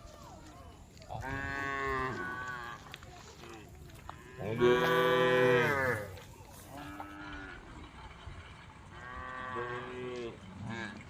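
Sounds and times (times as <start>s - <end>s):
cows mooing: 1.2s - 2.9s, 4.3s - 7.9s, 8.9s - 11.0s.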